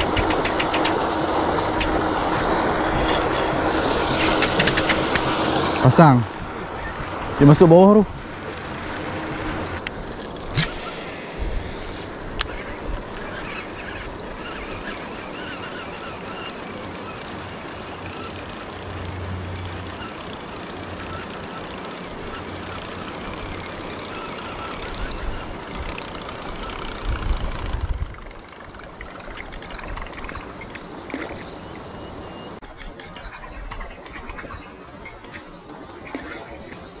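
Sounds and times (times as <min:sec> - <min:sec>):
sharp click: 0:09.8 - 0:11.0
wind buffeting microphone: 0:24.8 - 0:30.7.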